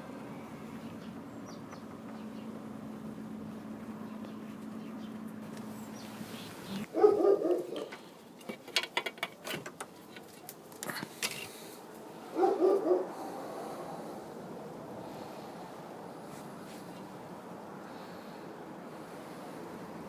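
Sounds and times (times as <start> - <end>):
dog barking: 6.9 - 7.9, 12.3 - 13.2.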